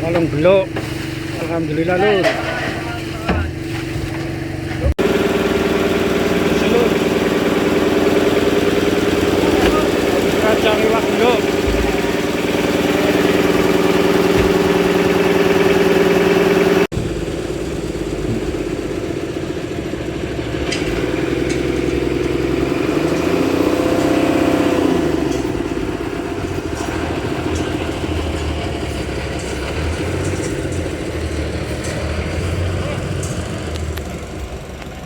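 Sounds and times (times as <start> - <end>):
engine running steadily: 0.0 - 35.0
second engine rising and falling: 1.4 - 35.0.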